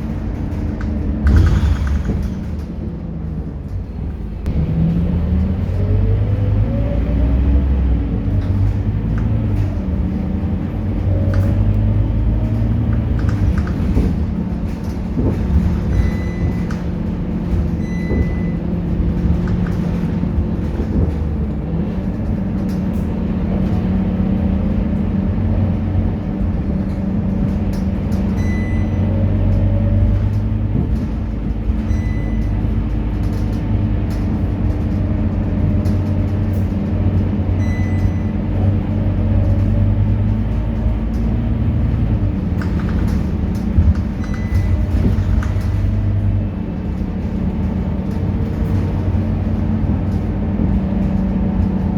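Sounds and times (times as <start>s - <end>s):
bus diesel engine running: 0.0s - 51.9s
short electronic beeps: 15.9s - 16.6s, 17.8s - 18.6s, 28.4s - 29.0s, 31.9s - 32.5s, 37.6s - 38.3s.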